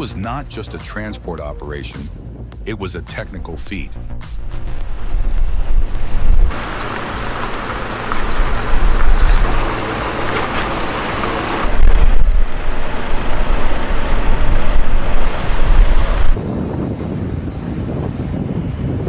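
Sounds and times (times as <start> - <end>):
deep low rumble: 3.4 - 17.1
traffic noise: 4.0 - 16.4.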